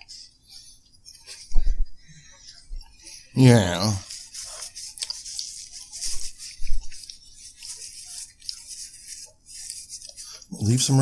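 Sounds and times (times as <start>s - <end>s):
chewing with crisp crackles: 4.0s - 10.5s.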